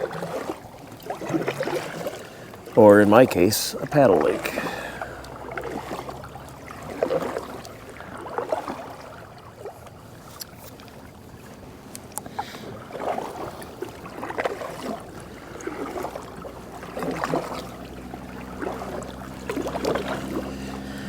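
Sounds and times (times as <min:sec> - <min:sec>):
paddle strokes in water: 0:00.0 - 0:21.0
low steady hum: 0:15.0 - 0:21.0.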